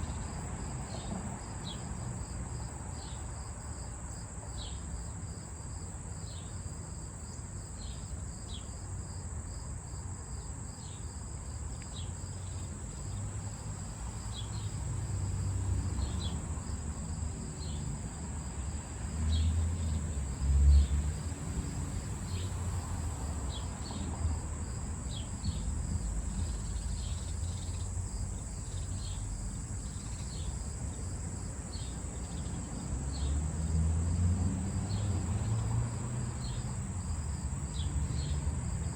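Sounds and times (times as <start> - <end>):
insect chirps: 0.0 - 38.9
high-pitched insect trill: 19.2 - 33.8.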